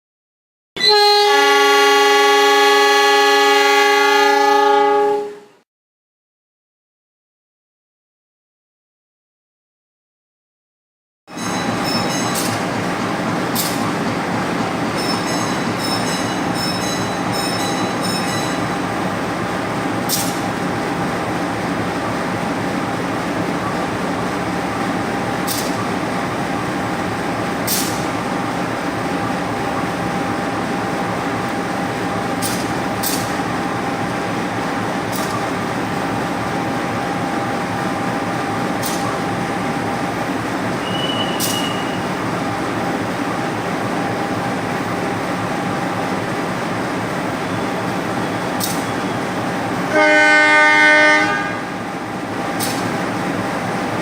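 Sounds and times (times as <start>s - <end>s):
train carriages rumbling on rails: 11.3s - 54.0s
held tone: 15.0s - 18.9s.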